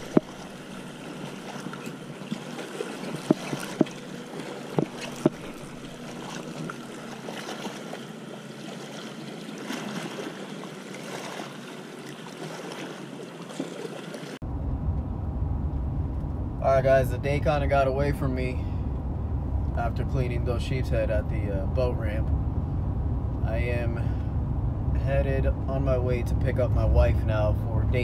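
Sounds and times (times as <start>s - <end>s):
car rumbling on road: 0.0s - 1.4s, 14.4s - 28.0s
water at the shore: 0.0s - 14.4s, 16.6s - 22.4s, 23.4s - 28.0s
wind: 0.0s - 28.0s
sharp knocks: 4.8s - 5.4s.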